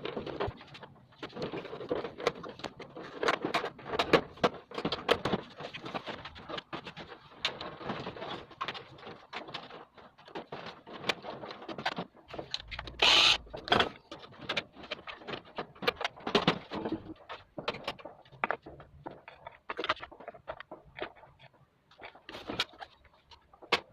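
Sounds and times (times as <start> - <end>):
clicks and knocks of parts handled: 0.0 - 23.9
harsh scrape or clatter: 12.3 - 14.1.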